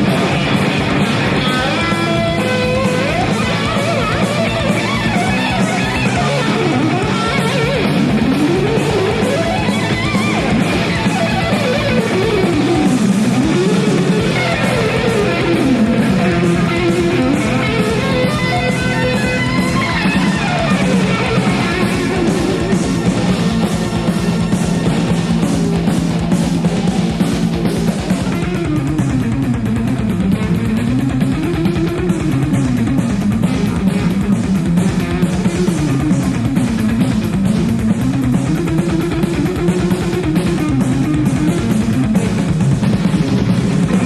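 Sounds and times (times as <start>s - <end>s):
bass and drum beat: 0.0s - 44.0s
lead electric guitar scale runs: 0.0s - 44.0s.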